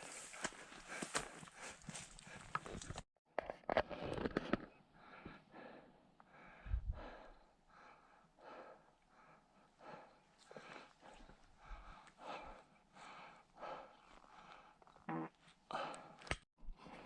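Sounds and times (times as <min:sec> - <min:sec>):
person breathing hard: 0:05.0 - 0:14.8.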